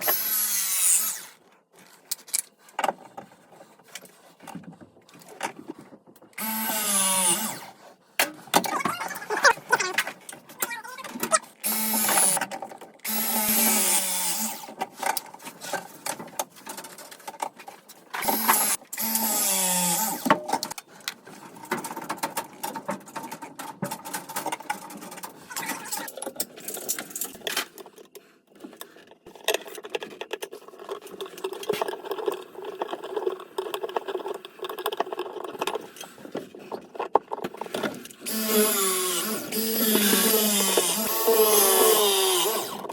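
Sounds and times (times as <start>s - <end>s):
power drill running: 0.0s - 1.3s, 6.4s - 7.7s, 11.6s - 12.4s, 13.0s - 14.7s, 18.2s - 20.2s, 38.2s - 42.9s.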